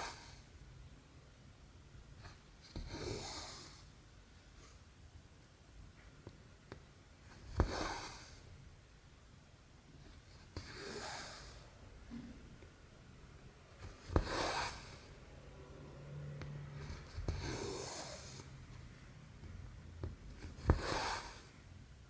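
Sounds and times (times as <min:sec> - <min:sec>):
thread swishing through fabric: 0:13.8 - 0:15.2.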